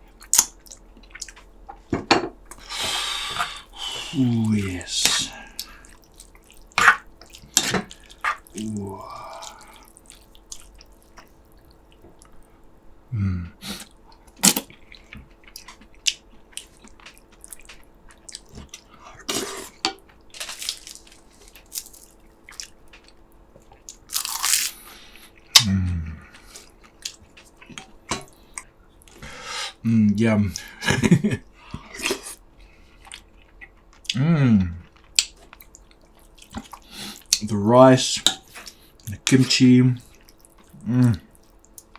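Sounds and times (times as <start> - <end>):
man chewing food: 0.0 - 29.5, 30.6 - 37.6, 38.2 - 39.3, 40.0 - 41.9
man humming with enjoyment: 13.1 - 13.5
wet mouth smacks and crunches: 14.4 - 14.8.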